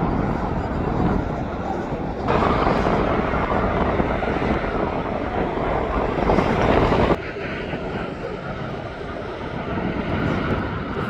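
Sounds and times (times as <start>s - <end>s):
jet airliner engines: 0.0s - 11.0s.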